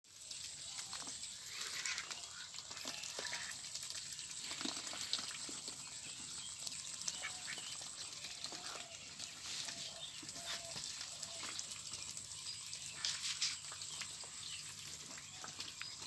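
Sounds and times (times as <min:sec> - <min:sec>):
ducks quacking: 0:07.0 - 0:07.9.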